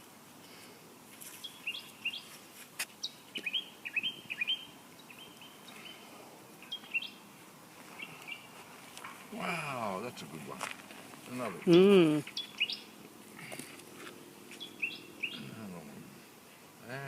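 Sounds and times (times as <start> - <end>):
small bird chirping: 1.4 - 2.4, 3.0 - 7.2, 7.9 - 8.6, 11.6 - 13.0, 14.5 - 15.6.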